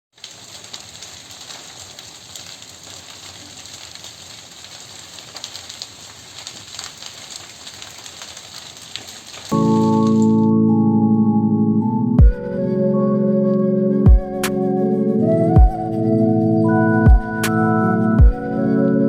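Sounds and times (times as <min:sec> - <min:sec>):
grass fire hissing: 0:00.1 - 0:10.4
fire crackling and popping: 0:00.1 - 0:10.5.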